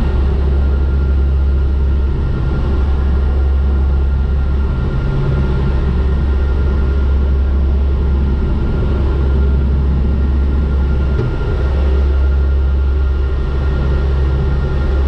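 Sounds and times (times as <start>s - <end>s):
turboprop engines droning: 0.0s - 15.0s.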